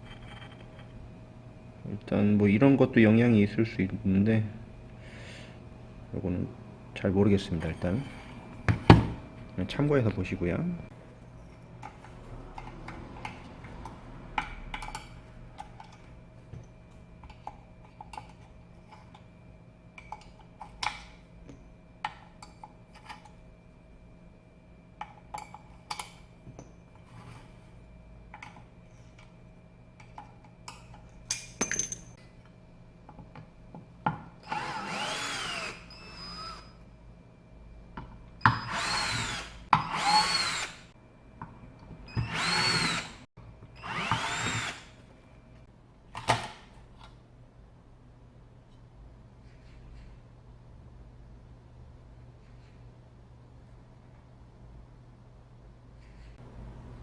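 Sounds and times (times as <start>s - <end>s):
power screwdriver whirring: 34.4s - 36.7s, 38.6s - 40.8s, 42.2s - 43.1s, 43.8s - 44.9s.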